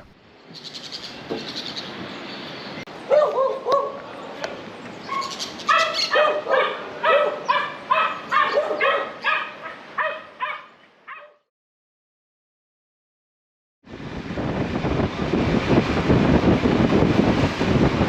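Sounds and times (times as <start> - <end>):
dog yipping: 3.1 - 4.0, 5.1 - 11.4.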